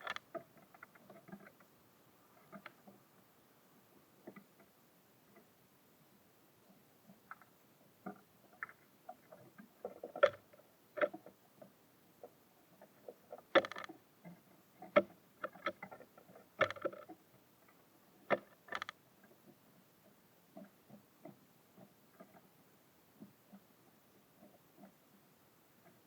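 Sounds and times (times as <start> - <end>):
birds pecking on wooden feeder: 7.3 - 17.2, 18.3 - 19.0.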